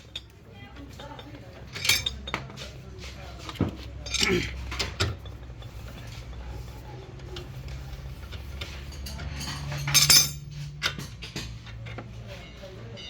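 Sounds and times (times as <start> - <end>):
metal tools clinking: 0.0 - 12.2.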